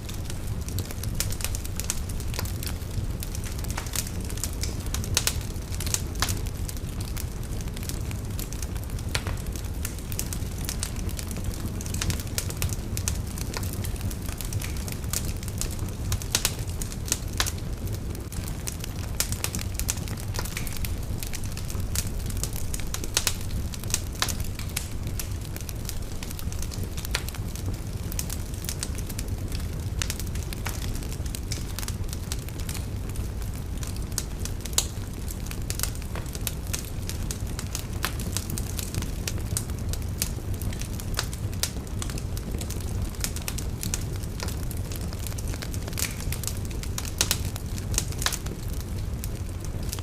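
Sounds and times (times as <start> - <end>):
wood fire crackling: 0.0 - 50.0.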